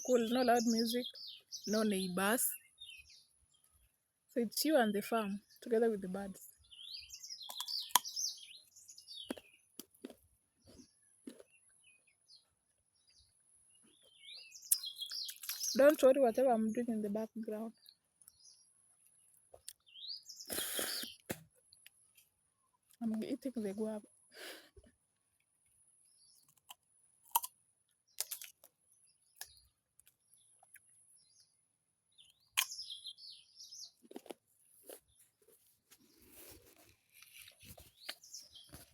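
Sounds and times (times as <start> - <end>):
bird chirps: 0.0 - 3.9, 4.8 - 9.8, 10.6 - 18.8, 19.7 - 21.3, 28.1 - 34.2, 37.2 - 38.9
crisp crunches of fruit being chewed: 7.4 - 8.2, 9.2 - 11.7, 14.7 - 16.0, 19.3 - 23.2, 26.4 - 30.9, 33.9 - 38.9.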